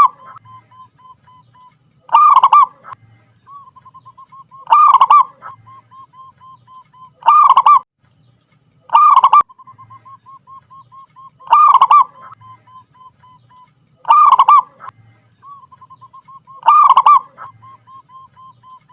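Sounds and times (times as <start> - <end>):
dove rolling coos: 2.1 - 3.0, 4.2 - 7.8, 8.9 - 13.4, 14.1 - 14.9, 15.9 - 18.9.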